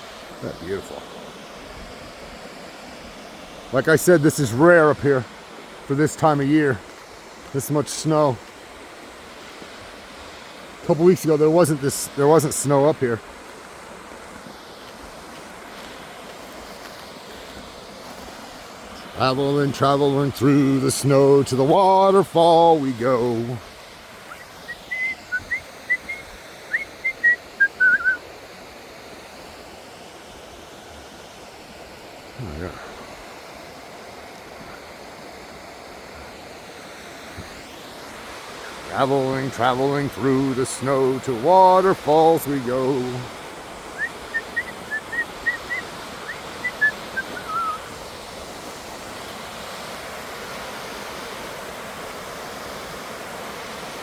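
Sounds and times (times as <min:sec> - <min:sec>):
water rushing: 0:00.0 - 0:54.0
person whistling: 0:24.3 - 0:28.2, 0:44.0 - 0:47.9.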